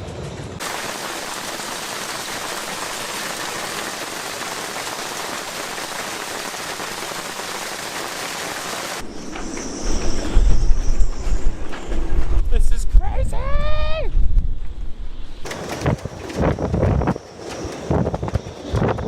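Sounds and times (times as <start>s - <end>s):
heavy rain pouring: 0.6s - 9.0s.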